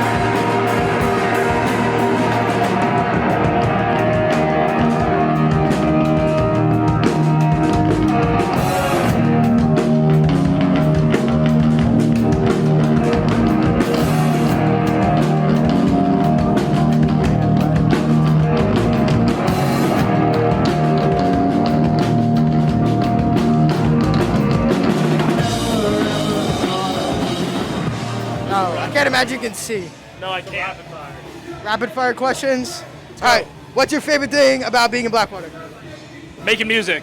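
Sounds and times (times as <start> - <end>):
rock music with drums and guitar: 0.0 - 29.4.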